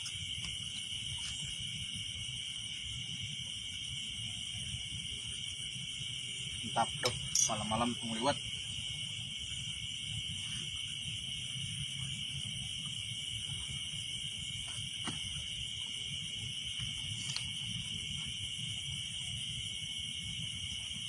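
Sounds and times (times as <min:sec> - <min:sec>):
night insects trilling: 0:00.0 - 0:21.0.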